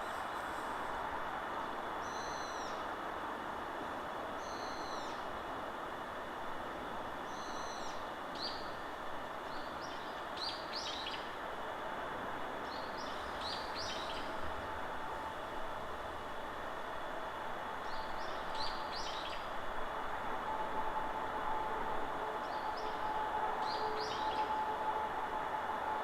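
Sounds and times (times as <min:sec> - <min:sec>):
wind rushing in trees: 0:00.0 - 0:26.0.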